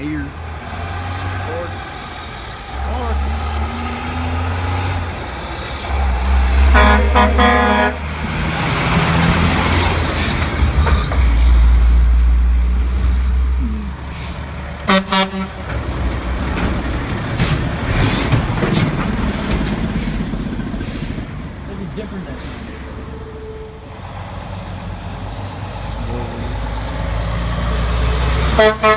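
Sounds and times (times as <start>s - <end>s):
diesel truck engine rumble: 0.0s - 28.9s
truck air horn blasts: 6.6s - 8.1s, 14.9s - 15.6s, 28.5s - 28.9s.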